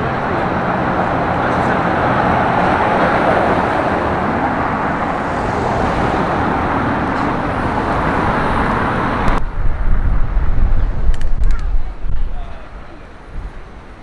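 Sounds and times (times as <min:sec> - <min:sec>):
city street traffic: 0:00.0 - 0:14.0
uneven low rumble: 0:04.4 - 0:11.1.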